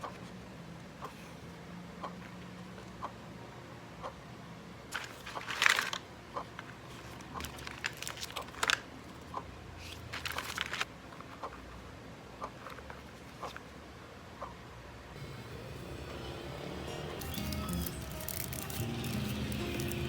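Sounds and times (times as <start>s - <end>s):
packaging crinkling and rustling: 4.9s - 6.0s, 6.9s - 8.9s, 9.8s - 10.9s, 17.2s - 20.0s.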